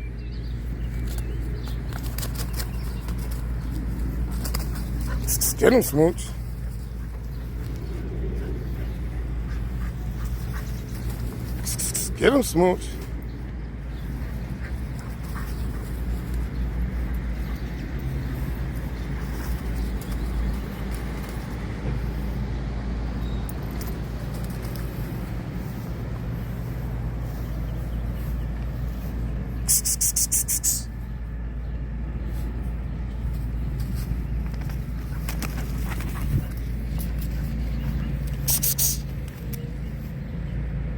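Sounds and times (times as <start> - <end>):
low outdoor rumble: 0.0 - 30.0, 30.8 - 40.9
rapid fluttering pulses: 0.3 - 5.6, 6.3 - 12.2, 33.2 - 40.2.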